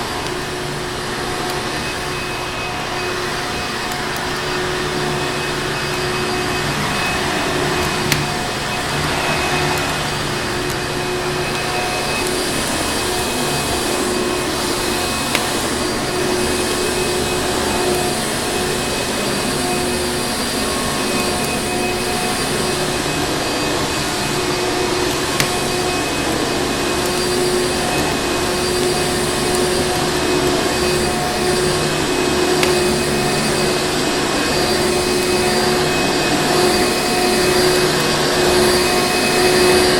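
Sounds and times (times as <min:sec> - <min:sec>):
vacuum cleaner motor running: 0:00.0 - 0:39.9
wood fire popping: 0:01.4 - 0:23.5, 0:24.1 - 0:33.8.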